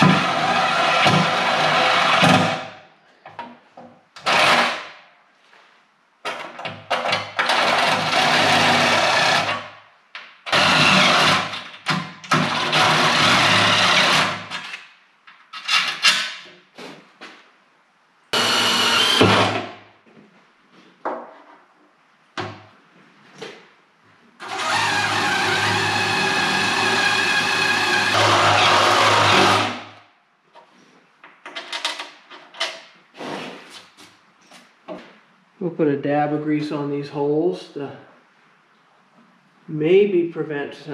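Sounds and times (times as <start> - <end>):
electric drill running: 4.3 - 4.7, 10.5 - 11.4, 12.5 - 14.4, 18.4 - 19.6, 24.4 - 29.8.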